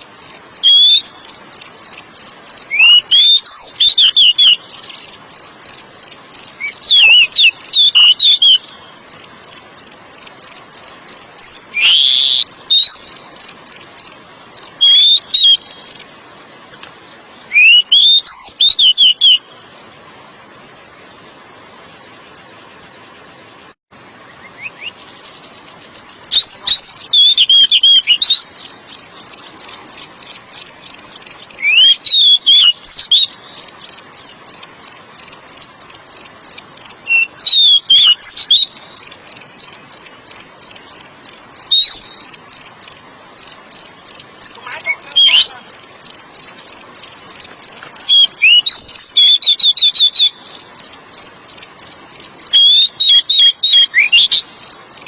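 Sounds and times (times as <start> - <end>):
rapid high-pitched cricket chirping: 0.0 - 16.5, 26.3 - 55.0
bird singing whistled phrases: 0.6 - 1.2, 2.7 - 5.2, 6.5 - 10.2, 11.4 - 13.2, 14.6 - 16.4, 17.5 - 19.5, 24.4 - 25.0, 26.3 - 33.7, 37.0 - 42.4, 44.4 - 50.6, 52.2 - 54.6.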